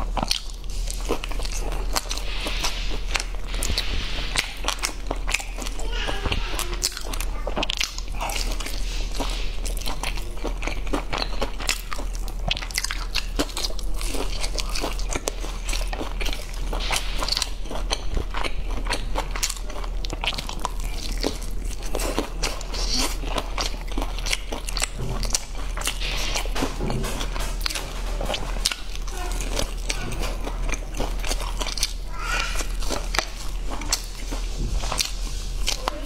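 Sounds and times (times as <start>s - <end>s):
low hum: 0.0s - 6.8s
crunchy chewing of fried chicken: 0.0s - 36.0s.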